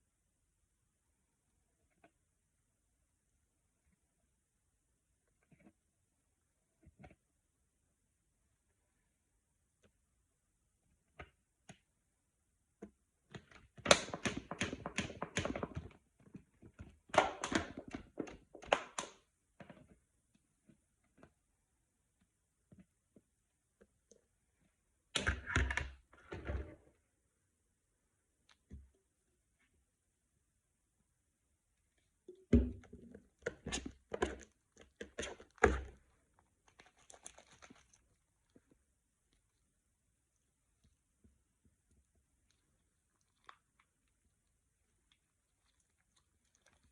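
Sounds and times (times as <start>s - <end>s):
bottle of slime being shaken: 36.7s - 38.1s.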